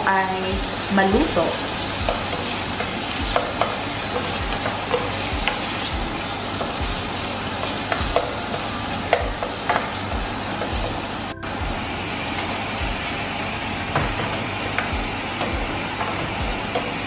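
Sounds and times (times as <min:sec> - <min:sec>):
vegetables sizzling in oil: 0:00.0 - 0:17.0
wooden spoon knocking on pan: 0:02.0 - 0:07.0, 0:07.6 - 0:10.0, 0:13.9 - 0:17.0.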